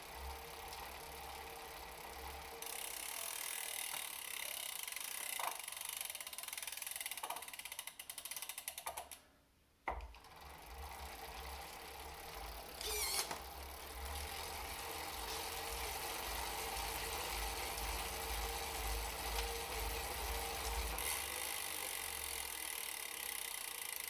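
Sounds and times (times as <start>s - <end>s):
freehub ratcheting clicks: 2.6s - 9.2s.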